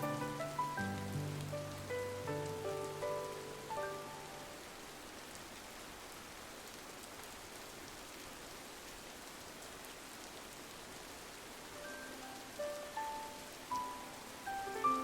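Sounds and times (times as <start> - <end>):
raindrop ticks: 0.0 - 3.8, 11.7 - 15.0
rain on a window pane: 0.0 - 15.0.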